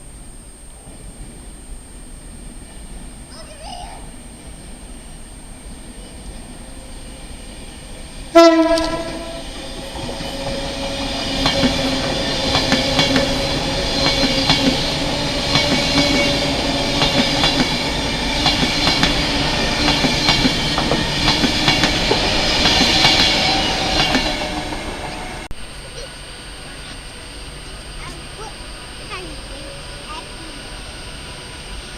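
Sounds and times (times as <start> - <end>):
train running along track: 0.0 - 31.9
train wheels clicking over rail joints: 7.8 - 25.5.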